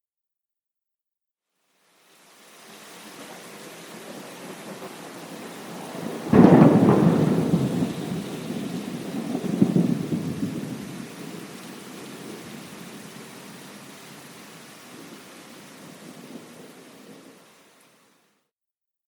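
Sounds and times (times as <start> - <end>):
rain hissing: 1.6 - 18.4
thunderclap rumbling: 3.2 - 13.3.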